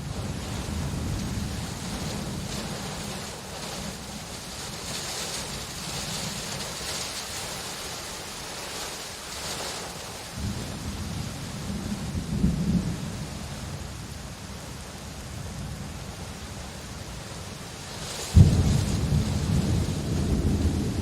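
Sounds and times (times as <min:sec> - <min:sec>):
rainfall hissing: 0:00.0 - 0:21.0
distant thunder rumble: 0:10.4 - 0:13.4, 0:18.3 - 0:21.0.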